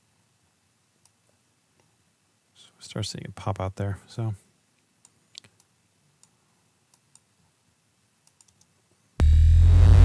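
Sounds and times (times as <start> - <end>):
mouse and keyboard clicks: 8.3 - 8.7
eight-bit synthesizer sound effect: 9.2 - 10.0.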